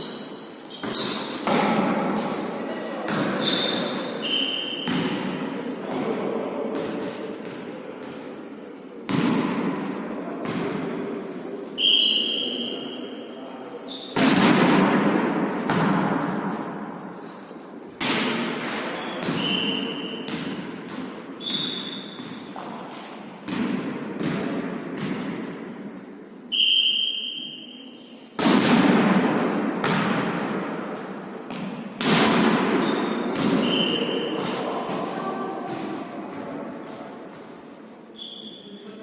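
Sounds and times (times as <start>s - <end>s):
shoe squeaks on court: 0.0s - 1.5s, 3.4s - 4.9s, 13.8s - 14.2s, 19.0s - 20.3s, 21.4s - 22.5s, 32.8s - 34.3s, 38.1s - 39.0s
volleyball thuds in echoing hall: 0.0s - 39.0s.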